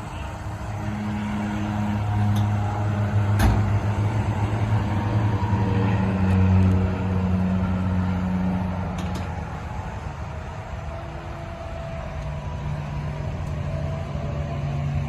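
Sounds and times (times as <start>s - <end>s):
road noise: 0.0s - 15.0s
vehicle engine droning: 0.0s - 15.0s.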